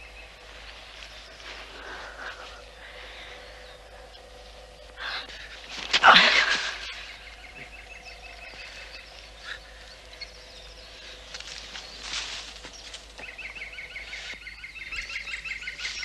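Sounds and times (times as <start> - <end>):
bird trilling chirps: 0.0 - 16.0.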